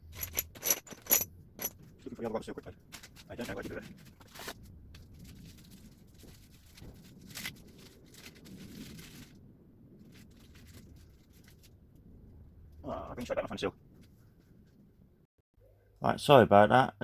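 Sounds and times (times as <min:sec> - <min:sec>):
faint rummaging through parts: 0:00.0 - 0:09.4.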